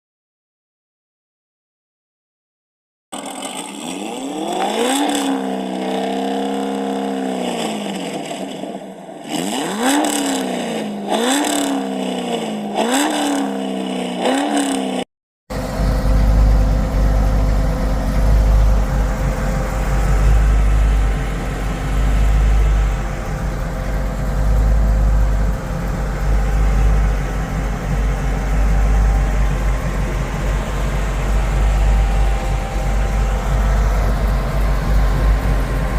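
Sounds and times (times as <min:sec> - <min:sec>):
car engine revving: 0:03.2 - 0:35.9
deep exhaust rumble: 0:15.5 - 0:35.9.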